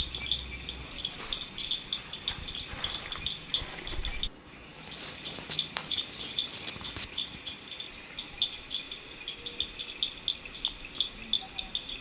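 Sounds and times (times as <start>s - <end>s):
sharp clicks and crackles: 0.0s - 4.3s, 4.9s - 7.6s
crickets chirping: 0.0s - 12.0s.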